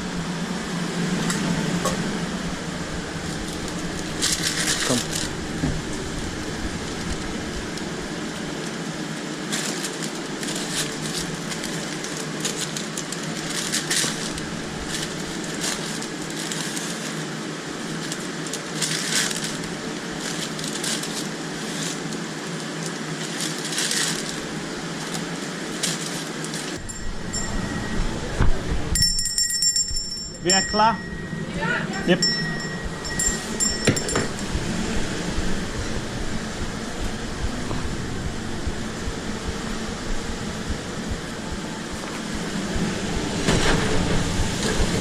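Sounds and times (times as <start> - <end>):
deep rumble: 0.0 - 8.6, 26.8 - 45.0
steady rushing noise: 0.0 - 45.0
hissing crackles: 34.4 - 45.0.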